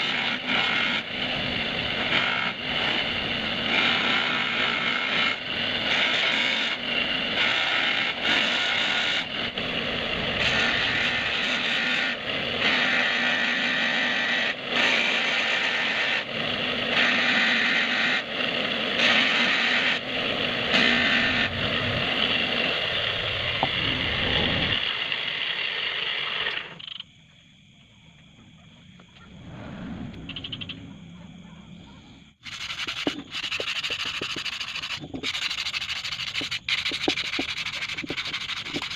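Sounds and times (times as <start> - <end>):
abrasive scraping on metal hub: 0.0 - 22.8, 32.4 - 38.9.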